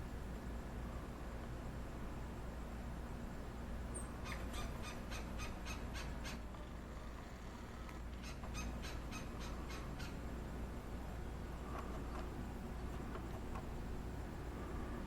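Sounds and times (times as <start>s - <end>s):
woodpecker calling sharp notes: 3.9s - 6.7s, 7.6s - 10.2s.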